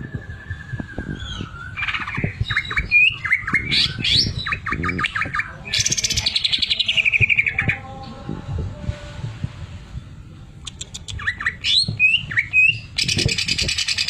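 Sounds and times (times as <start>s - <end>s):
bird singing whistled notes: 0.0s - 7.8s, 10.6s - 14.0s.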